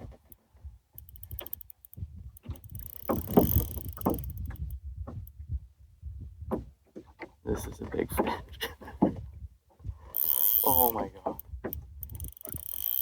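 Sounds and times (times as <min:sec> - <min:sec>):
water sloshing around boat: 0:00.0 - 0:05.5, 0:06.4 - 0:13.0
knocks on boat: 0:02.9 - 0:05.3, 0:06.4 - 0:07.3, 0:09.0 - 0:09.3.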